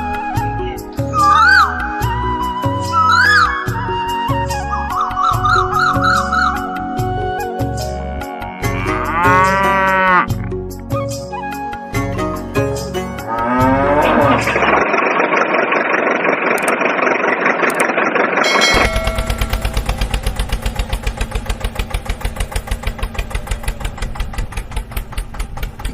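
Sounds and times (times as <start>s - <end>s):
cow mooing: 8.2s - 10.4s, 13.3s - 14.8s
engine idling with even chug: 13.8s - 25.9s.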